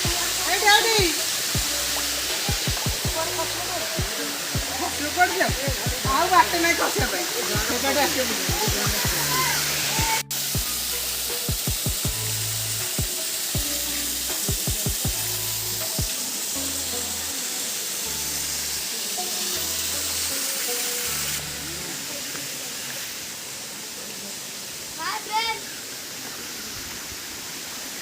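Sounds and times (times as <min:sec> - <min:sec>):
background music with bass thumps: 0:00.0 - 0:17.3
waterfall rushing: 0:00.0 - 0:28.0.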